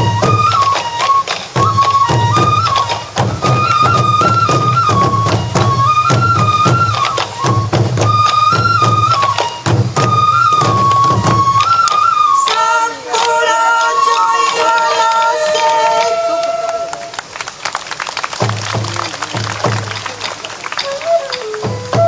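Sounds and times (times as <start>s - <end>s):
taiko drums beating: 0.0s - 12.6s, 18.4s - 22.0s
bamboo flute melody: 0.0s - 17.6s, 18.4s - 22.0s.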